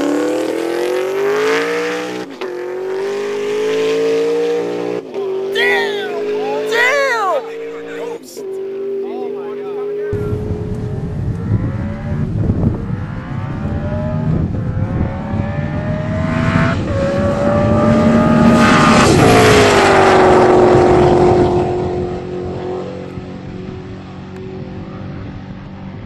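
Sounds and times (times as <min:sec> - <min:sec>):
car engine accelerating hard: 0:00.0 - 0:26.0.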